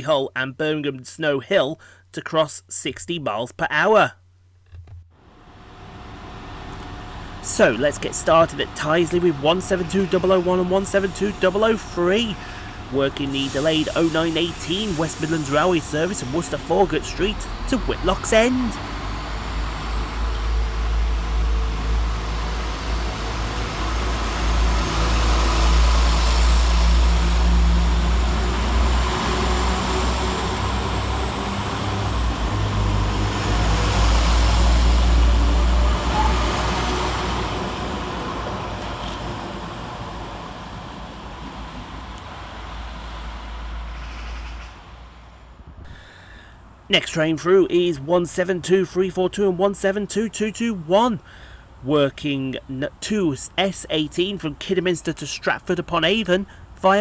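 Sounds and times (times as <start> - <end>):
wheel and rail noise: 4.8 - 49.0
diesel train rumble: 5.2 - 57.0.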